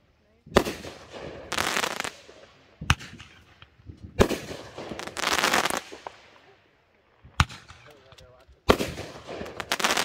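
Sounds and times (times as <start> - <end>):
dense burst of fireworks: 0.5 - 6.4, 8.6 - 10.0
fireworks bangs: 0.5 - 6.5, 7.2 - 10.0.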